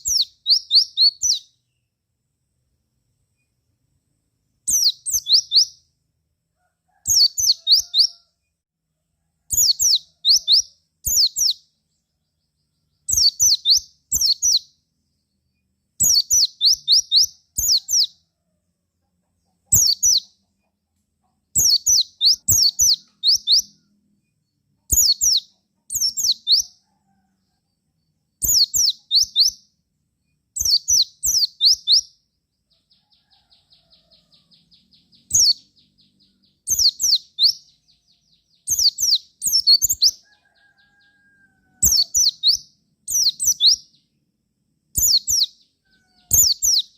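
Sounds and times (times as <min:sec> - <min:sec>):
bird chirping in bursts: 0:00.0 - 0:01.8, 0:04.6 - 0:05.9, 0:07.1 - 0:08.2, 0:09.5 - 0:18.2, 0:19.6 - 0:20.5, 0:21.5 - 0:23.8, 0:24.9 - 0:26.8, 0:28.3 - 0:29.7, 0:30.6 - 0:32.2, 0:32.8 - 0:41.2, 0:41.8 - 0:44.1, 0:44.9 - 0:46.9.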